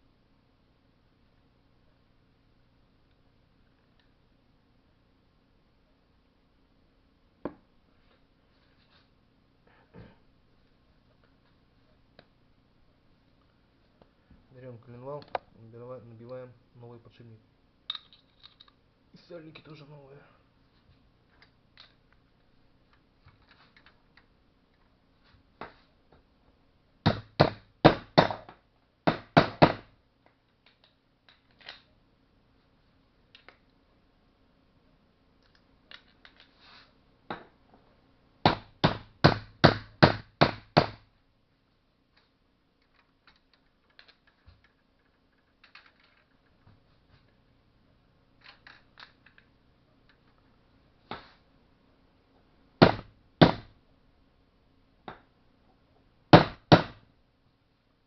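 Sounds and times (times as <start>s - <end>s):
metal parts clicking: 17.9s - 18.8s, 42.8s - 46.6s.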